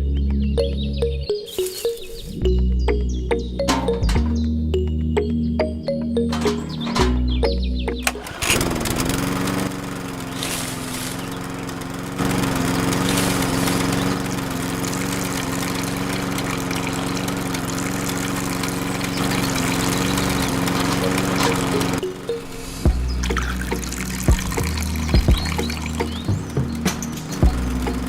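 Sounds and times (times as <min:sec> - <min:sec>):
small motor humming: 0:08.0 - 0:28.0.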